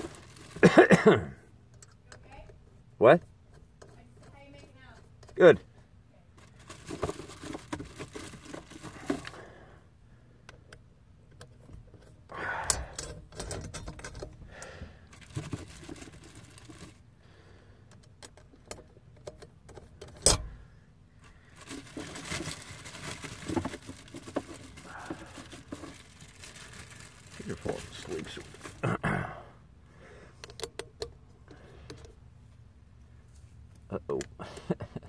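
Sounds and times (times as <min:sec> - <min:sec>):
handling noise: 0:00.0 - 0:01.1, 0:06.4 - 0:09.5, 0:15.1 - 0:17.0, 0:21.2 - 0:28.9
tools clicking and clinking: 0:30.4 - 0:31.2.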